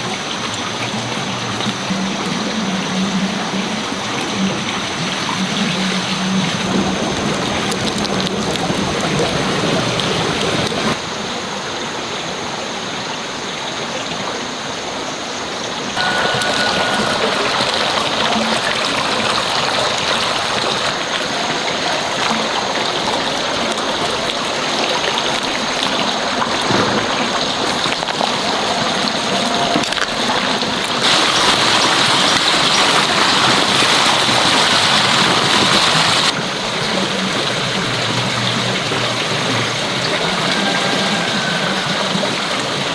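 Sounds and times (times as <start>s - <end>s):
rushing splashing water: 0.0s - 42.9s.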